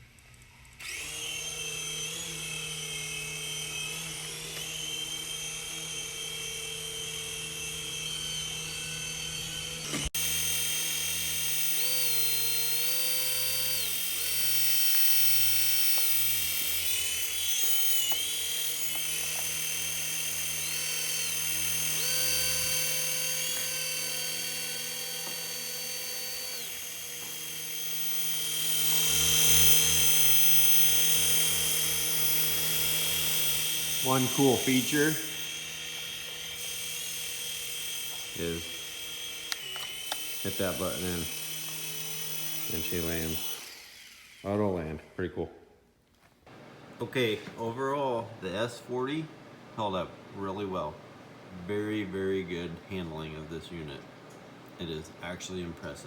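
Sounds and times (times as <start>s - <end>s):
toy helicopter whining in flight: 0.0s - 44.6s.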